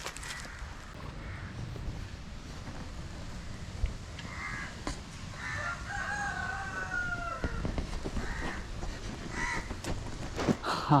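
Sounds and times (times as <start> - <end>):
rooster crowing: 4.3 - 8.5.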